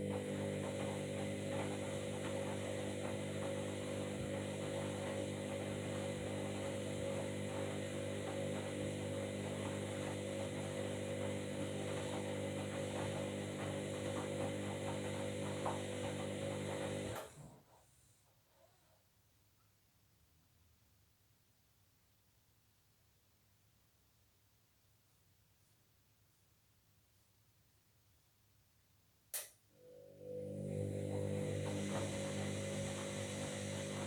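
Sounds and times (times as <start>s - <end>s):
washing machine motor hum: 0.0s - 17.6s, 29.8s - 34.0s.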